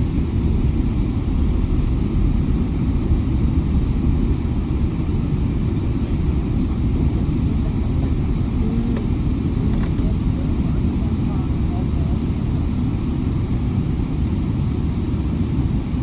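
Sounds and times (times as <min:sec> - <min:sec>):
airliner cabin engine rumble: 0:00.0 - 0:16.0.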